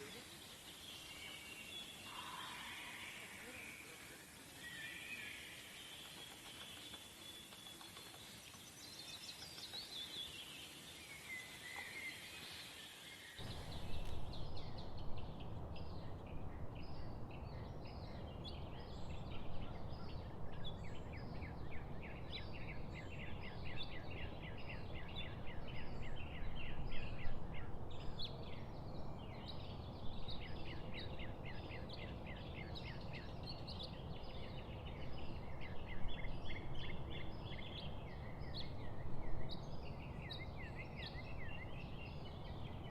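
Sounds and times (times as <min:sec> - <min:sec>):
small birds chirping: 0:00.0 - 0:42.9
steady low rumble: 0:13.4 - 0:22.0.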